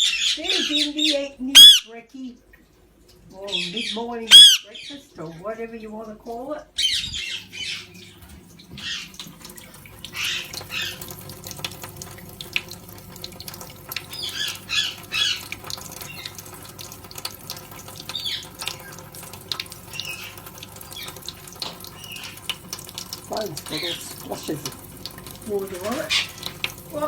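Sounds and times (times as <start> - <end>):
water splashes: 0.4 - 27.0
short parrot calls: 1.6 - 1.9, 4.3 - 4.7
tap running into sink: 8.1 - 27.0.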